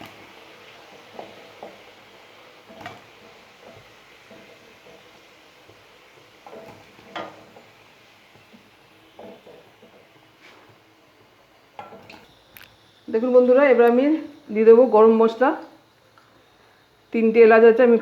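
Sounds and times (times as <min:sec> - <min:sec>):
oil sizzling in a pan: 0:00.0 - 0:18.0
utensil knocking and scraping pan: 0:00.9 - 0:02.0, 0:02.6 - 0:07.8, 0:09.2 - 0:10.7.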